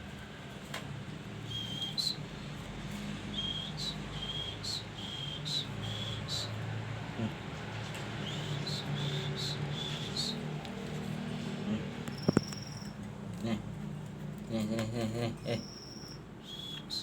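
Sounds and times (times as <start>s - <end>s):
bird short high calls: 12.1s - 13.0s, 15.6s - 17.0s.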